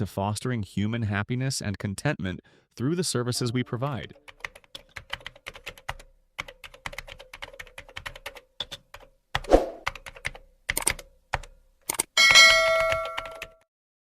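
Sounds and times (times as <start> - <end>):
keyboard typing clicks: 4.3 - 12.1, 12.8 - 13.7
short whoosh with thud: 9.5 - 9.8.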